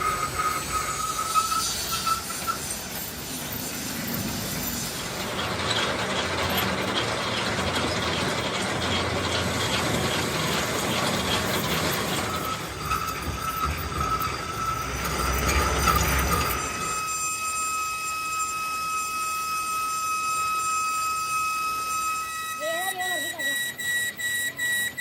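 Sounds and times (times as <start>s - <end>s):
machinery clattering: 0.0s - 17.0s
fast even ticking: 4.0s - 16.8s.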